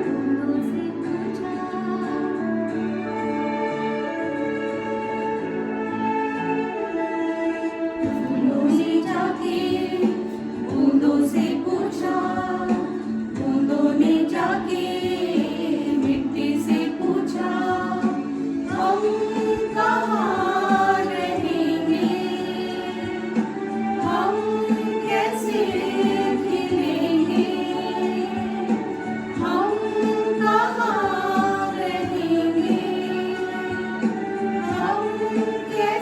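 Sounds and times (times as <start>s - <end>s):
group singing in unison: 7.2s - 36.0s.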